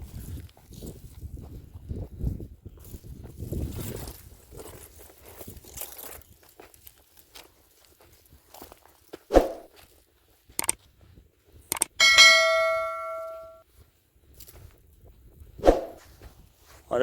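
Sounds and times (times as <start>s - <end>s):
metal object ringing: 12.0s - 13.6s.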